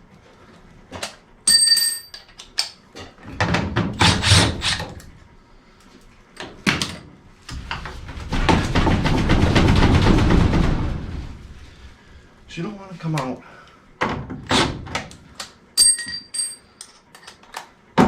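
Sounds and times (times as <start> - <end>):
knocks on sheet metal: 7.5 - 11.5
ringing metallic clang: 15.8 - 16.6.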